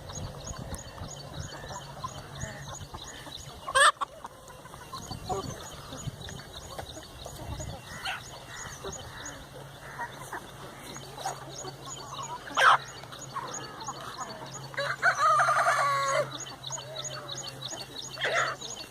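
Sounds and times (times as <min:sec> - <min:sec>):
chickens clucking: 0:00.0 - 0:18.9
rooster crowing: 0:14.8 - 0:16.3.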